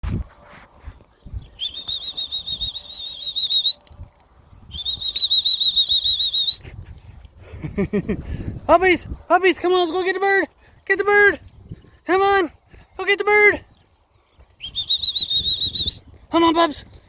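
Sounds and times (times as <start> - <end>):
trilling whistle blasts: 1.5 - 3.8, 4.7 - 6.6, 14.6 - 16.1.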